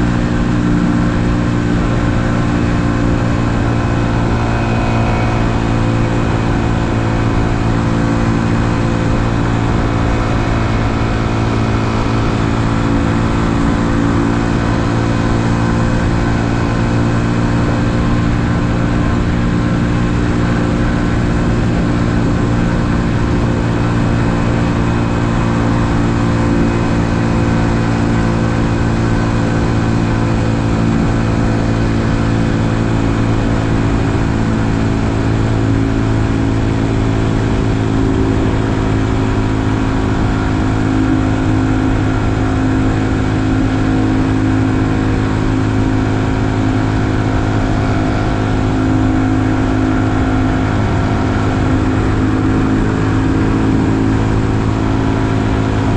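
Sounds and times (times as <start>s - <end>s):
motorcycle engine cruising: 0.0s - 55.9s.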